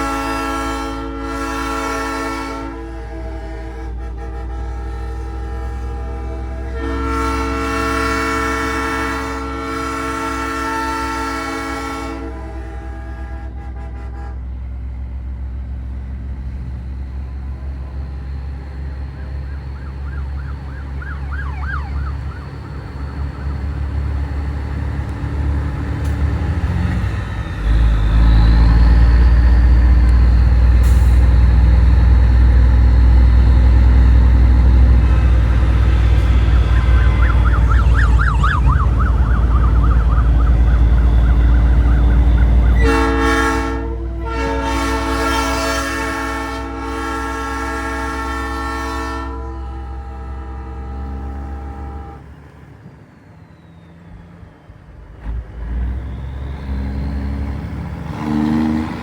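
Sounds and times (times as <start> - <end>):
truck engine rumble: 0.0 - 59.0
faint warbling siren: 17.2 - 24.5, 34.9 - 43.4.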